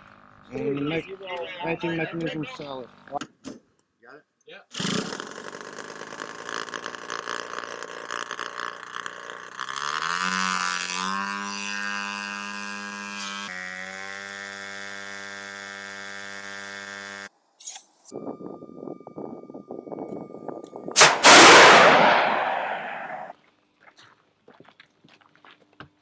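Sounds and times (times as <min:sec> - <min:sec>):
short sharp burst: 0:21.0 - 0:23.3.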